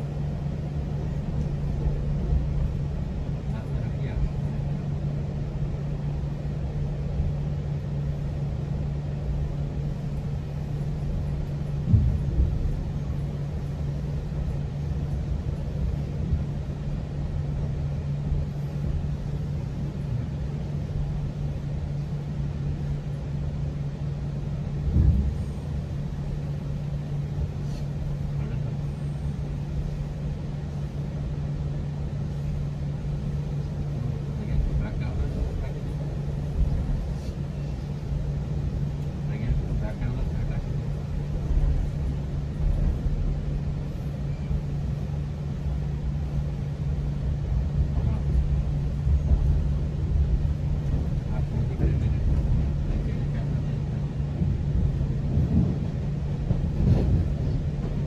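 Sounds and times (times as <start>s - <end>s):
train rumble inside coach: 0.0s - 58.0s.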